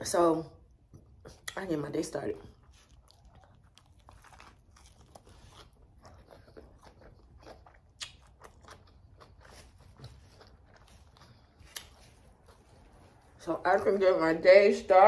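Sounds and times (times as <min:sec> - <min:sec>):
soft crunches of chewing: 0:02.4 - 0:13.4.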